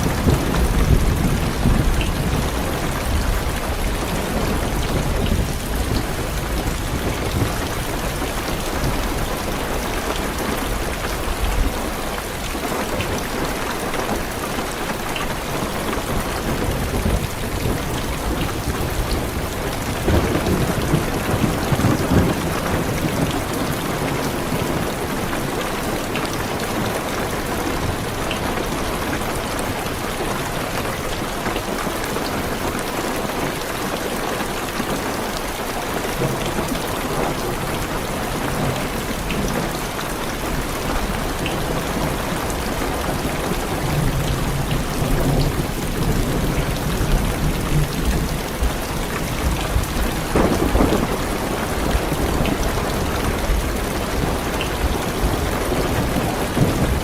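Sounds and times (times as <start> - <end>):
thunder rumbling: 0.0 - 11.9, 40.5 - 57.0
heavy rain on car roof: 0.0 - 57.0.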